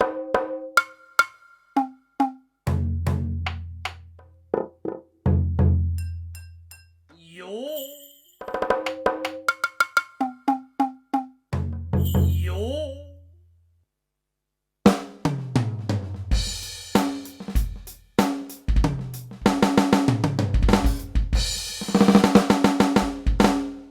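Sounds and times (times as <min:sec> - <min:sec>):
cymbals: 0:16.3 - 0:19.9
electronic drum beat: 0:16.3 - 0:23.9.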